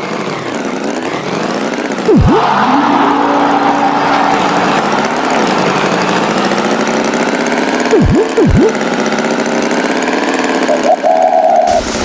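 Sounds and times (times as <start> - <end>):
cartoon tractor engine: 0.0 - 12.0
swooping sound effects: 2.0 - 9.0.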